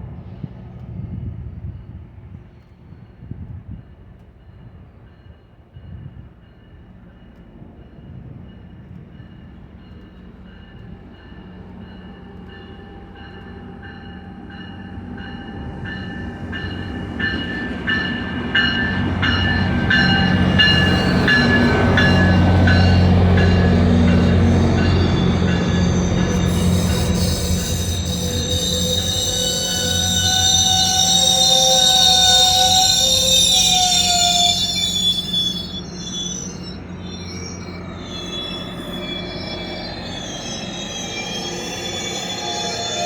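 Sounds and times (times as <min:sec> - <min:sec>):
diesel locomotive engine drone: 0:00.0 - 0:43.0
wheels and brakes squealing: 0:10.5 - 0:43.0.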